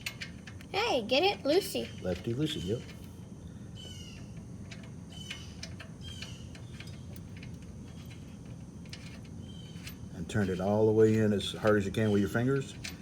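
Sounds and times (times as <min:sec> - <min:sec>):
low steady hum: 0:00.0 - 0:13.0
birds chirping: 0:01.2 - 0:04.4, 0:09.4 - 0:12.4.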